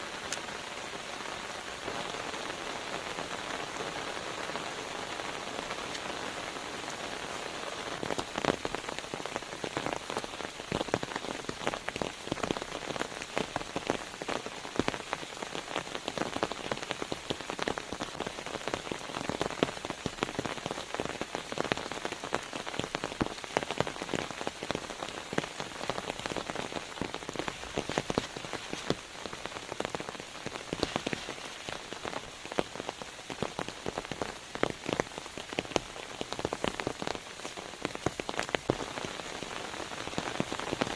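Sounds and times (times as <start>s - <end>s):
rain drops ticking on surface: 0.0s - 40.9s.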